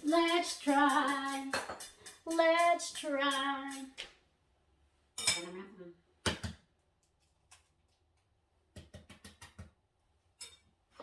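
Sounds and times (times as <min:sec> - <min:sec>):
hard objects tapping and clicking: 0:00.0 - 0:04.1, 0:08.7 - 0:09.8.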